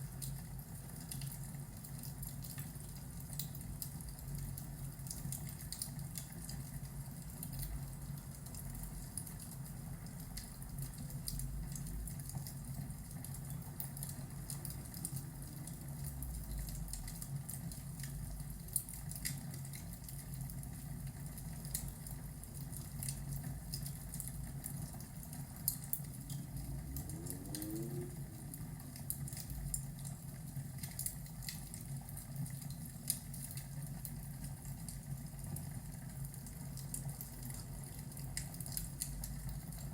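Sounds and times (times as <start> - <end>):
fire crackling and popping: 0.0 - 39.9
low rumble: 26.4 - 29.8.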